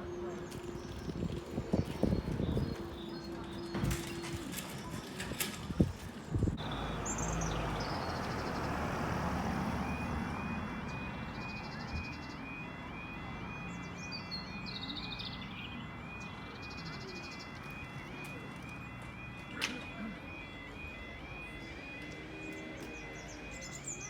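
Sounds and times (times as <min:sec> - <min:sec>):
two-tone crossing alarm: 0:00.0 - 0:06.0, 0:06.6 - 0:24.0
bird chirps: 0:06.6 - 0:08.8, 0:13.3 - 0:18.0, 0:22.4 - 0:24.0.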